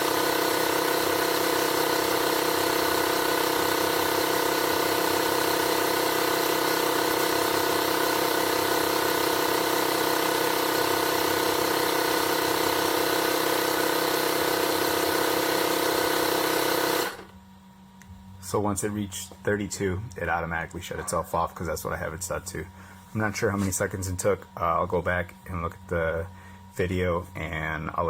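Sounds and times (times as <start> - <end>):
tire inflator running: 0.0 - 17.4.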